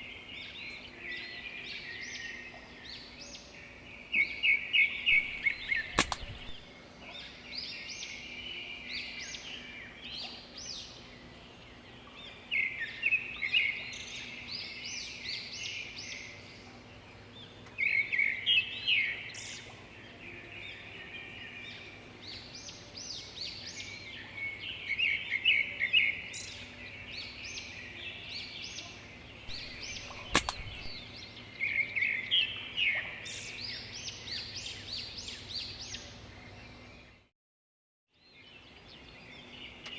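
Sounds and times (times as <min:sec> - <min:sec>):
small birds chirping: 0:05.1 - 0:06.6, 0:29.5 - 0:31.1
sharp click: 0:05.1 - 0:06.7, 0:29.5 - 0:31.0.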